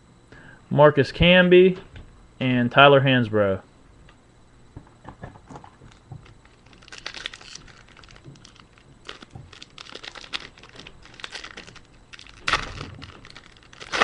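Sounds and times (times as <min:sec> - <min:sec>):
card pack crinkling and rustling: 0:05.6 - 0:14.0.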